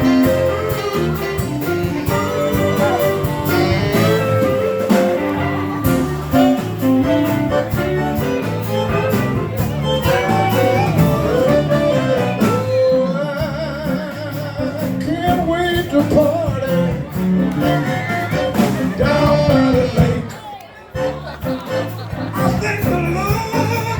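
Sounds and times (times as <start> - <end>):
zydeco band playing: 0.0 - 23.9
person singing: 10.0 - 17.8, 18.8 - 20.4.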